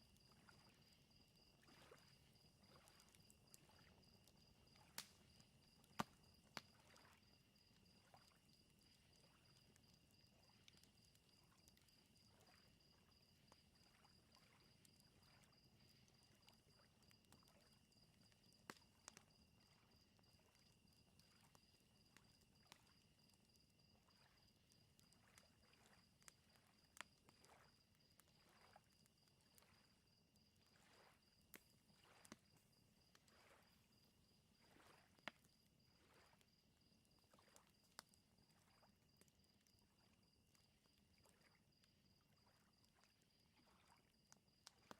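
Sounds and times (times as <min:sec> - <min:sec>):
crickets chirping: 0:00.0 - 0:44.9
wood fire crackling: 0:02.2 - 0:06.8
lake waves lapping: 0:30.7 - 0:31.2.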